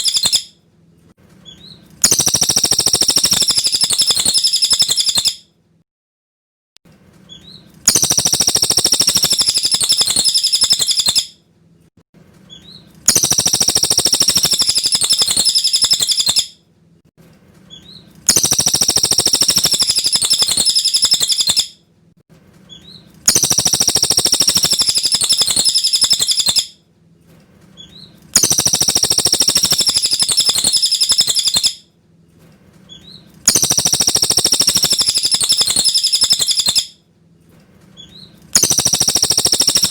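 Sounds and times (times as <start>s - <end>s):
bird twittering song: 0.0s - 0.5s, 1.4s - 5.4s, 7.3s - 11.4s, 12.5s - 16.6s, 17.7s - 21.8s, 22.7s - 26.7s, 27.8s - 31.8s, 32.9s - 37.0s, 38.0s - 39.9s.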